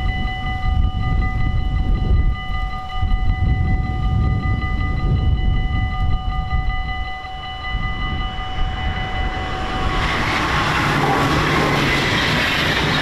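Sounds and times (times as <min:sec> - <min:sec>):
level crossing bells ringing: 0:00.0 - 0:13.0
train wheels rushing on rails: 0:07.8 - 0:13.0.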